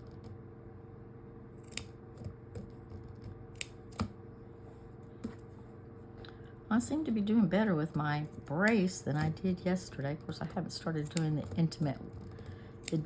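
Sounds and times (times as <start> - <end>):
scissors snipping fabric: 1.6 - 2.3, 3.5 - 4.1, 11.0 - 12.2, 12.8 - 13.0.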